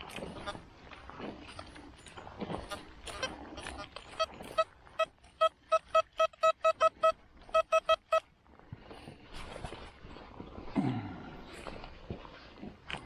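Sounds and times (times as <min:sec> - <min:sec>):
metal detector short beeps: 0:04.1 - 0:08.2.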